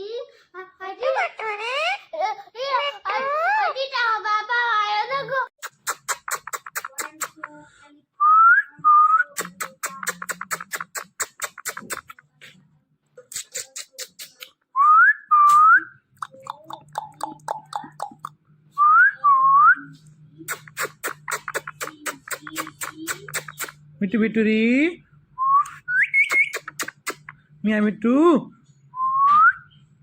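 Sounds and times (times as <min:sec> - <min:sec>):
fast clicking: 0:05.6 - 0:07.6.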